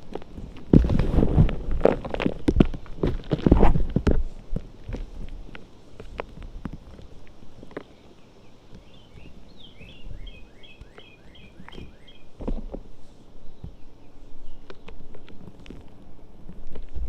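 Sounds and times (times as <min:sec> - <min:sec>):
chalk crunching and crumbling: 0:00.0 - 0:10.1
bird singing: 0:07.4 - 0:16.3.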